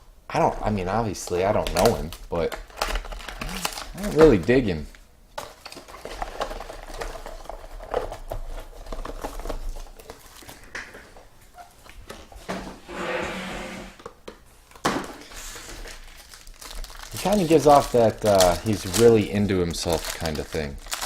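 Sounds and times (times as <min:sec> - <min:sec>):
card pack wrappers crinkling: 0:01.2 - 0:10.7, 0:14.7 - 0:21.0.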